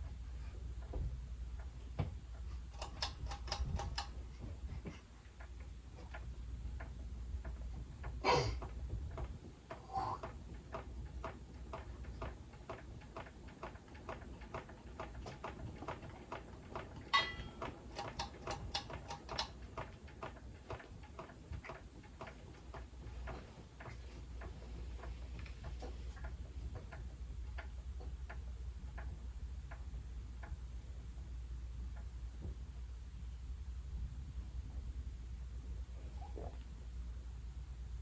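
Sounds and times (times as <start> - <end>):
ceiling fan clicking and humming: 0.0 - 38.0
loud ringing clicks: 17.0 - 19.5.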